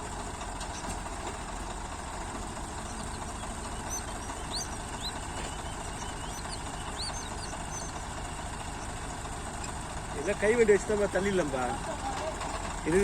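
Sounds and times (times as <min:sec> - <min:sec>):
tractor diesel engine idling: 0:00.0 - 0:13.0
bird chirping: 0:02.5 - 0:09.0.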